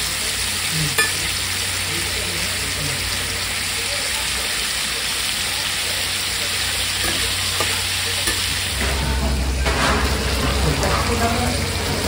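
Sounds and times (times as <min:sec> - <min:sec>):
utensil stirring food: 0:00.0 - 0:01.9, 0:02.5 - 0:12.0
food sizzling on griddle: 0:00.0 - 0:12.0.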